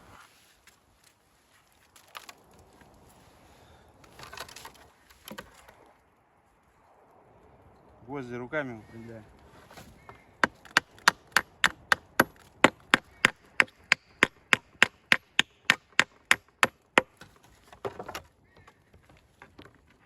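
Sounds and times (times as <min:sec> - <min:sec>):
handling rustle: 0:00.0 - 0:07.0, 0:08.9 - 0:10.3.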